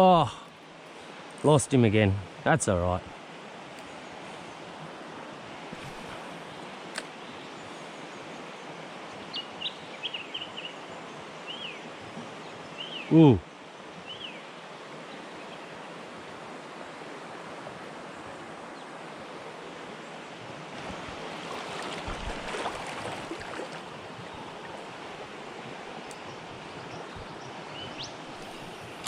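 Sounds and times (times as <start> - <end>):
river water rushing: 3.1 - 29.0.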